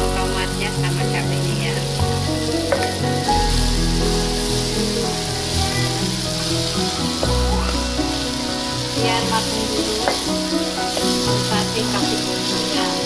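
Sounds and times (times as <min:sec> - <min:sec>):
background music: 0:00.0 - 0:13.0
vegetables sizzling in hot oil: 0:00.0 - 0:13.0.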